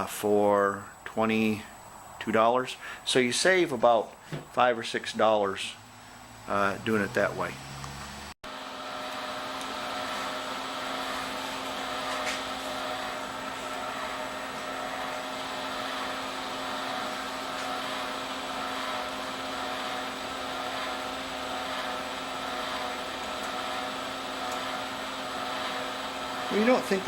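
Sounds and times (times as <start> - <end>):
welder wire-feed motor humming: 5.8 - 27.0.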